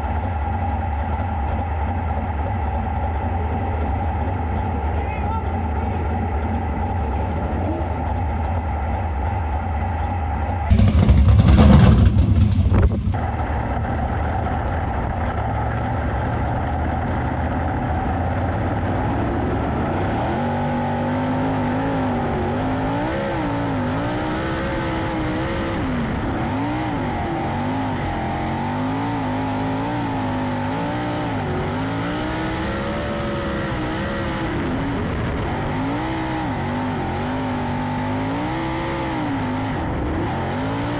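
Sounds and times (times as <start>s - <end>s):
loud rushing burst: 10.7s - 13.2s
race car engines: 10.7s - 13.2s, 20.1s - 40.9s.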